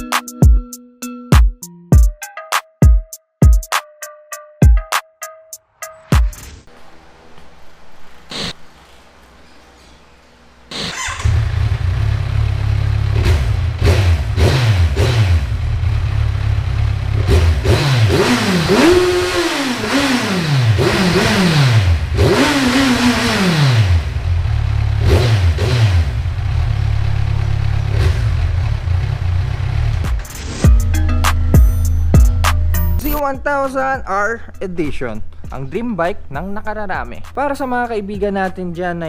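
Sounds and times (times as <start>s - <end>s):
motorcycle engine idling and revving: 6.2s - 33.2s.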